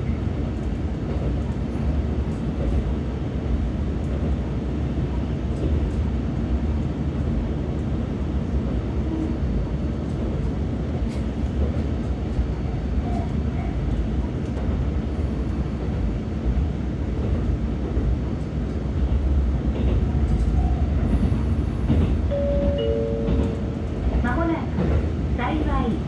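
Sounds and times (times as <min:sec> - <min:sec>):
railcar interior rumble: 0:00.0 - 0:26.0
chime tone: 0:22.3 - 0:23.6.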